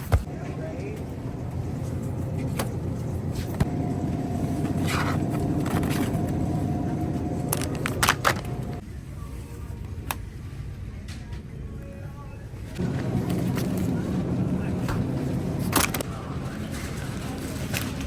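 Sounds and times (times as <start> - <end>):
vehicle engine rumbling: 0.3 - 8.8, 12.8 - 16.4.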